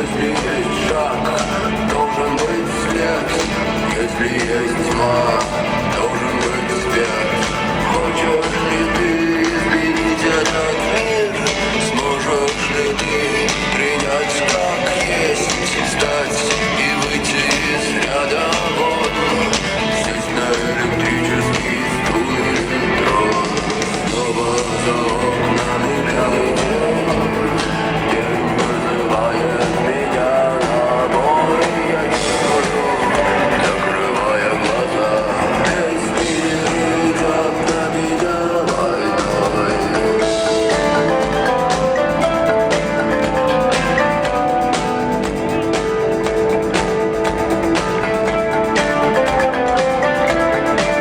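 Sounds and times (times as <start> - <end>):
live rock band: 0.0 - 51.0
person singing: 0.0 - 51.0.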